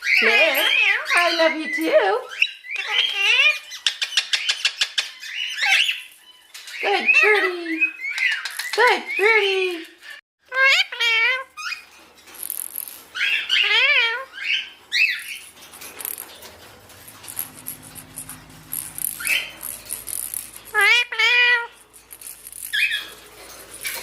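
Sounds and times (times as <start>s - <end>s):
rattling and clicking of cage: 11.7s - 13.6s, 14.7s - 24.0s
parrot warbling calls: 13.2s - 15.1s.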